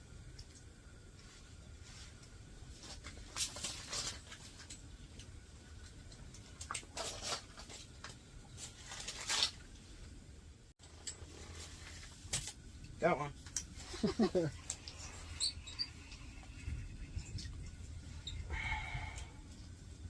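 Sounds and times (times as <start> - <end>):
low steady rumble: 0.0 - 20.0
rustling and scraping handling: 1.2 - 10.0.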